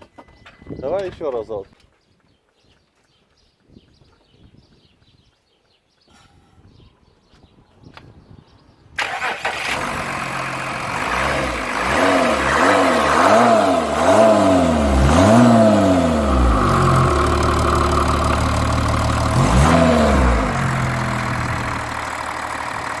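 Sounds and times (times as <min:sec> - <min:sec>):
diesel engine revving and idling: 0:09.0 - 0:23.0.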